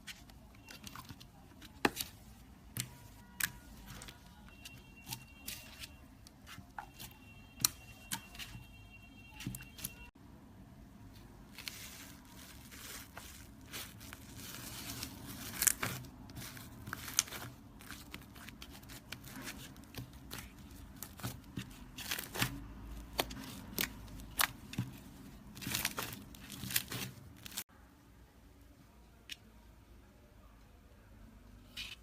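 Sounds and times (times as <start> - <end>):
slime crackling and popping: 13.7 - 20.5.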